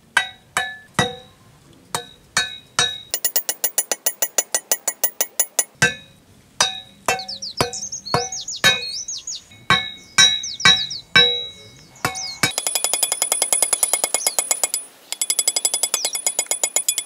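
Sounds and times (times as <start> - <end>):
hammer striking wooden stakes: 0.0 - 9.0, 9.6 - 17.0
high rising chirps: 6.7 - 12.6.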